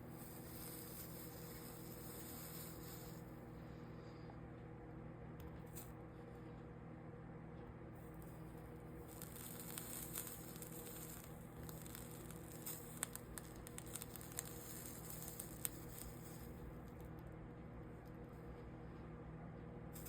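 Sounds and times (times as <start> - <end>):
solder sizzling and crackling: 0.0 - 3.7, 8.0 - 19.2
steady electrical hum: 0.0 - 20.0.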